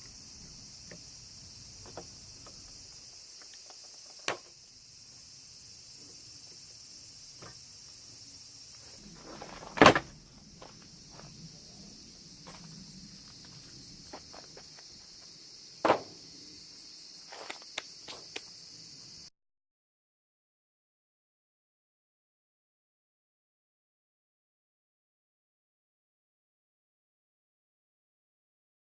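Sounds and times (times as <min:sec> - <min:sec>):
steady high hiss: 0:00.0 - 0:19.3
small ticks: 0:17.3 - 0:18.7.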